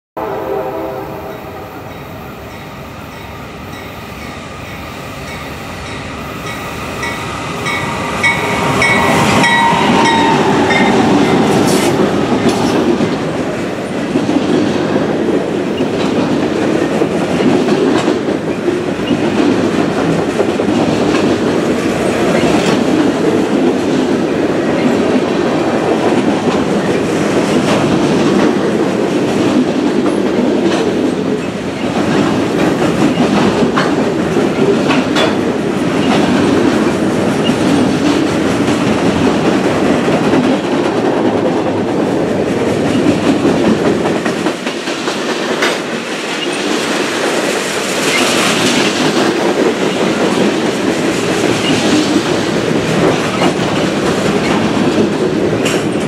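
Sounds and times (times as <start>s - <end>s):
diesel locomotive passing: 0.2s - 56.0s
freight cars rumbling: 6.8s - 24.9s.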